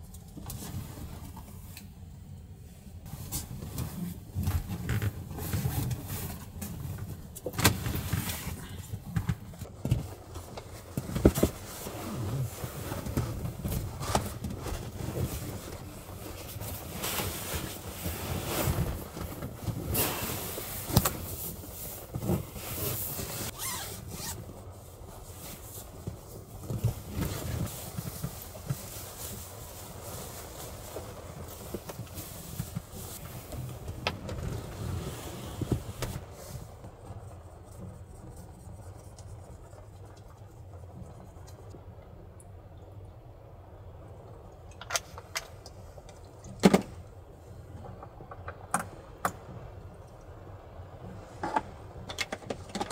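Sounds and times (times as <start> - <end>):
rustling and scraping: 0.0 - 41.8
steady hiss: 15.8 - 23.7.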